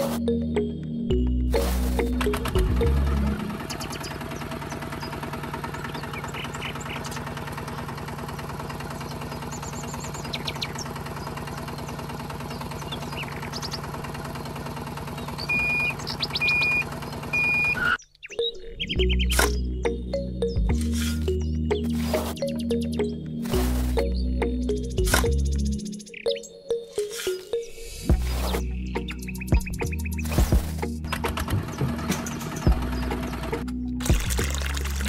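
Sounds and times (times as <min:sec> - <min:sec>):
small motor running: 0:02.5 - 0:17.8
faint birds chirping: 0:03.5 - 0:33.6.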